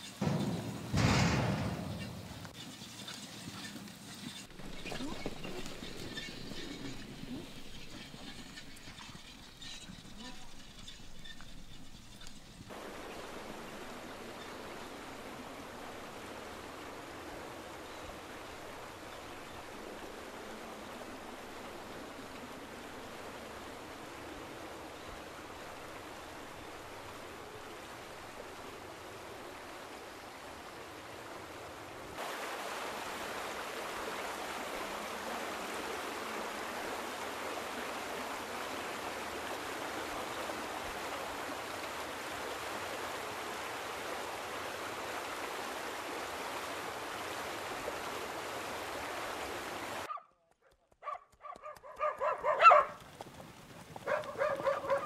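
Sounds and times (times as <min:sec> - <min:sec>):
steady rushing outdoor noise: 0:00.0 - 0:50.1
dog barking: 0:50.1 - 0:50.3, 0:51.0 - 0:53.0, 0:54.0 - 0:55.0.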